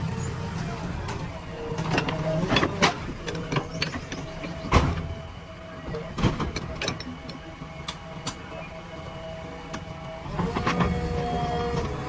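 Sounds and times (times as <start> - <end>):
diesel engine running: 0.0 - 5.4.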